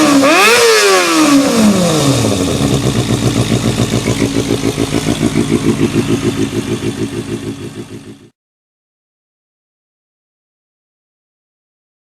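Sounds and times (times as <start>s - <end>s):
motorcycle engine revving and idling: 0.0s - 8.4s.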